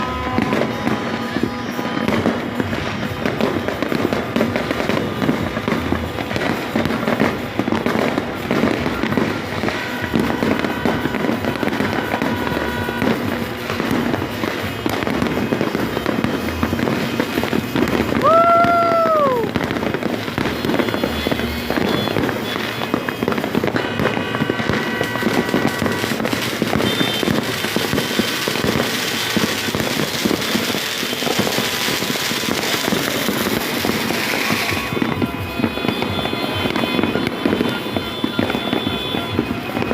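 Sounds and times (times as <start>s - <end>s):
fireworks banging and crackling: 0.0s - 39.9s
whistling firework: 0.0s - 39.9s.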